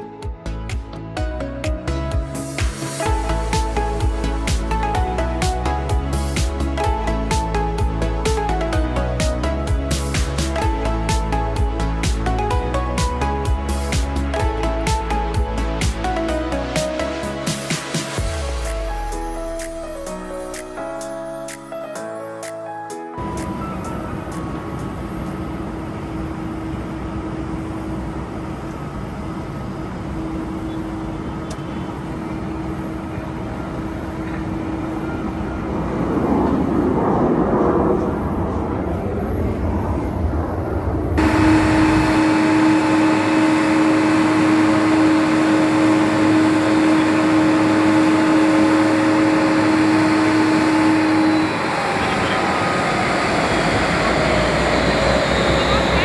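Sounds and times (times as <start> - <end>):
jet engines whining and roaring: 2.4 - 20.8, 23.2 - 56.0
tone sliding down in pitch: 41.2 - 56.0.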